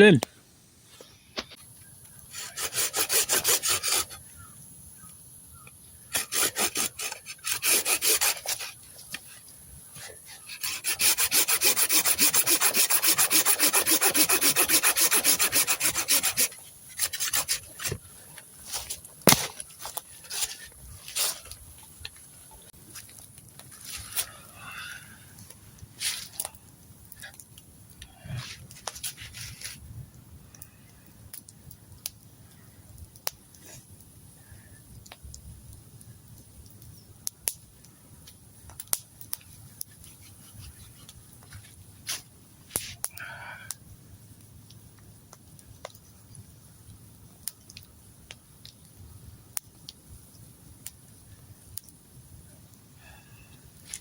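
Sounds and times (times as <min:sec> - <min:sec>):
campfire crackling: 0:00.0 - 0:54.0
faint steady hiss: 0:00.0 - 0:54.0
fire popping and snapping: 0:00.0 - 0:54.0.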